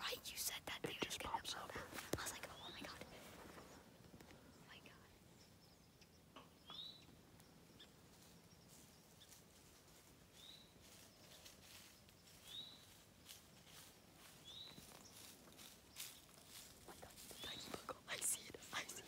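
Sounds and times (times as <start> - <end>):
faint clicks and rustles: 0.4 - 4.4, 10.8 - 19.0.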